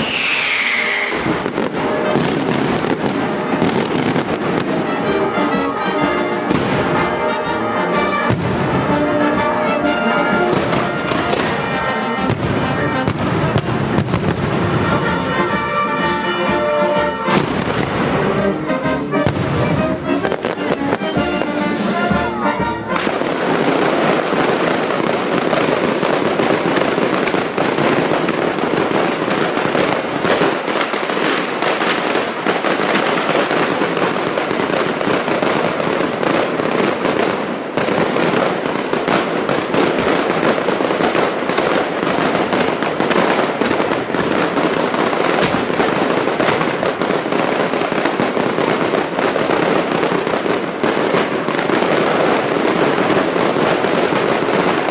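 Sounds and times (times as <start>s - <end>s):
firework bangs and crackling: 0.0s - 54.9s
band music: 0.8s - 27.3s.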